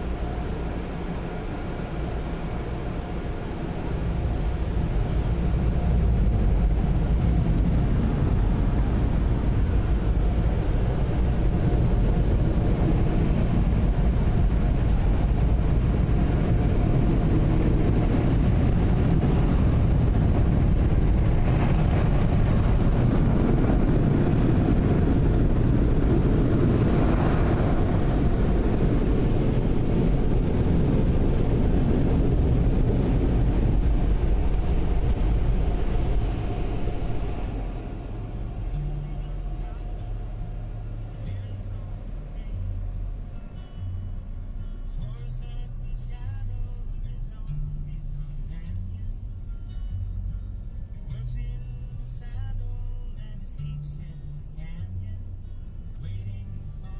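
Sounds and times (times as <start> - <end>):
car wash machinery roar: 0.0 - 56.9.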